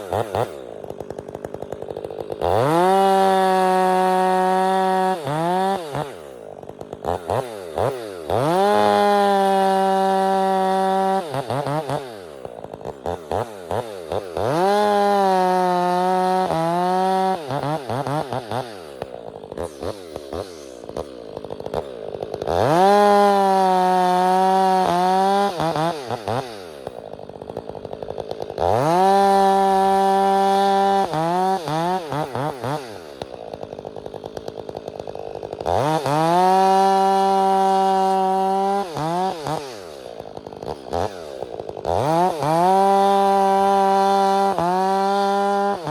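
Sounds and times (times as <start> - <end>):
chainsaw revving and idling: 0.0 - 45.9.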